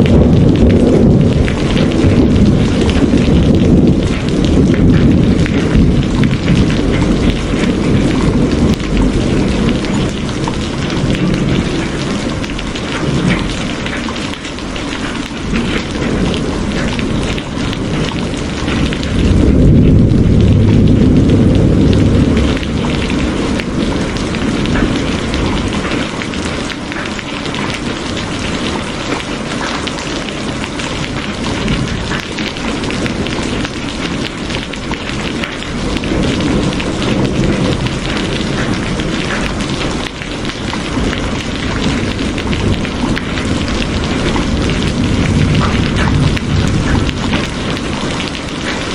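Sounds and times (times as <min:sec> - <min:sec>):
heavy rain falling: 0:00.0 - 0:48.9
thunder rumbling: 0:00.0 - 0:48.9.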